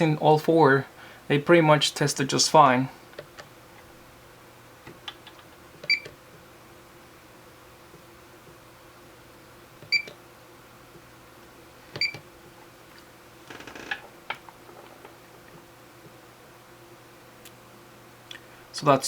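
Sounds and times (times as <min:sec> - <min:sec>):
multimeter beeps: 0:05.9 - 0:06.1, 0:09.9 - 0:10.2, 0:12.0 - 0:12.2.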